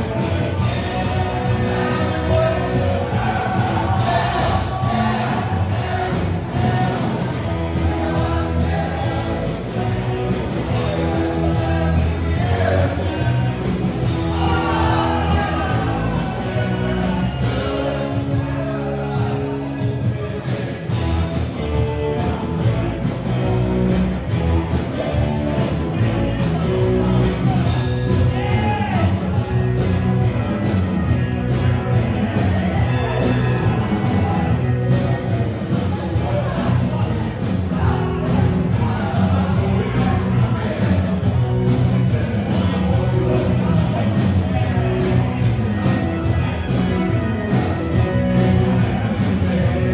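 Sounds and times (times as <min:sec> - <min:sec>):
person singing: 0:00.0 - 0:23.4
drums steady beat: 0:00.0 - 0:49.9
rock band playing live: 0:00.0 - 0:49.9.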